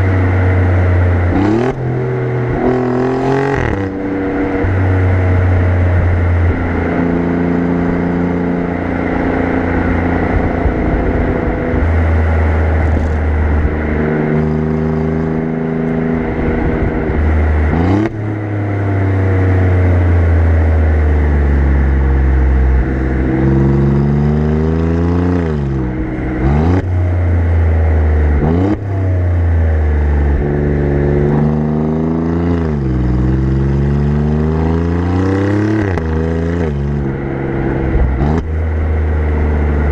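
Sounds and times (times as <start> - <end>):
car exhaust revving: 0.0 - 39.9
road and wind noise: 0.0 - 39.9.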